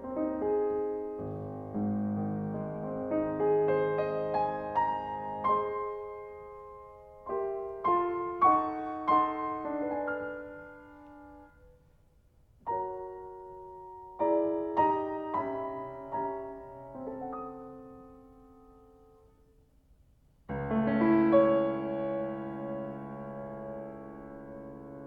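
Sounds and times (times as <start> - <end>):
slow solo piano: 0.0 - 25.0.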